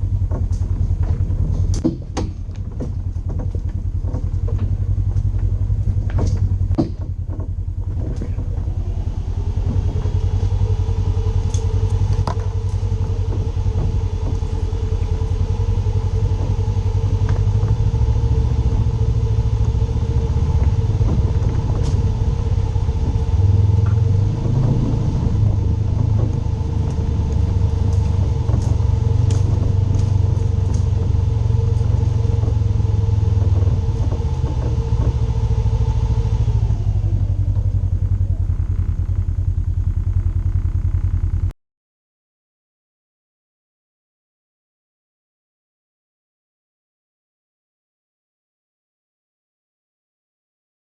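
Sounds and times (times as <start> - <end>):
heavy low rumble: 0.0 - 41.6
off-road vehicle engine running: 0.0 - 41.6.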